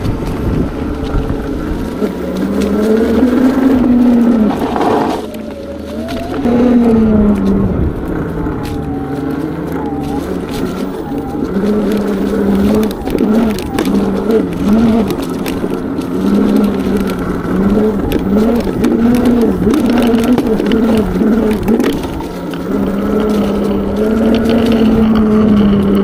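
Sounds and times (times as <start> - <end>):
electric motor whining: 0.0 - 26.0.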